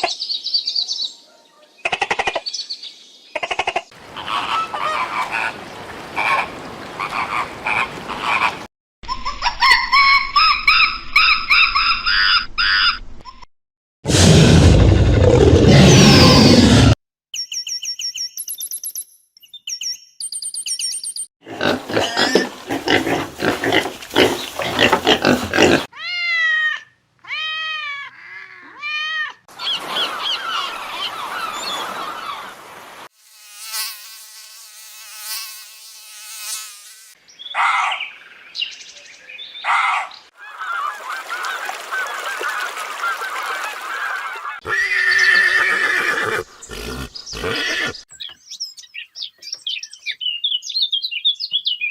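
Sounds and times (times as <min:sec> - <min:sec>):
animal cries: 0:04.1 - 0:05.5, 0:21.5 - 0:29.5, 0:44.6 - 0:48.0.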